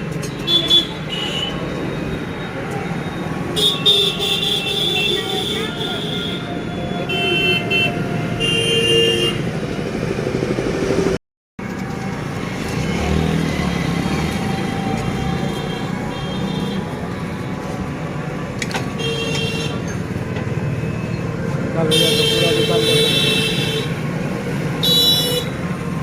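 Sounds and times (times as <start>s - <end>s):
car horns: 3.6s - 9.5s, 18.8s - 19.9s, 21.8s - 24.1s, 24.8s - 25.6s
motor vehicles running: 9.4s - 21.9s.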